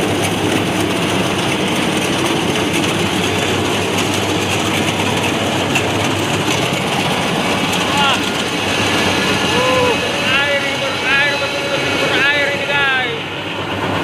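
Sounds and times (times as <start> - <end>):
combine harvester diesel engine clattering: 0.0 - 14.0.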